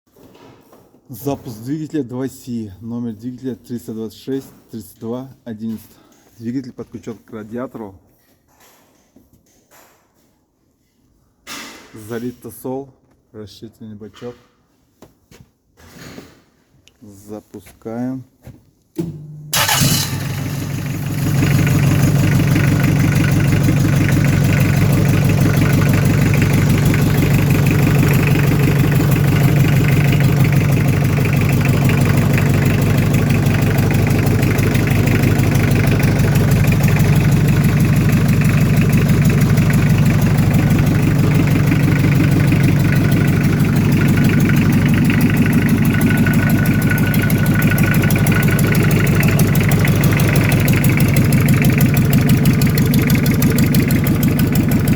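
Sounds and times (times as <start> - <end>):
diesel engine idling: 19.6 - 54.9.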